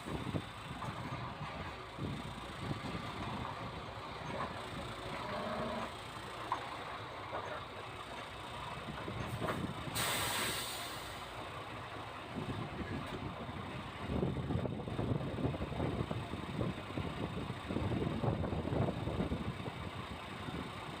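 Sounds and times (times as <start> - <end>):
diesel engine running: 0.0 - 21.0
air brakes hissing: 9.8 - 11.3.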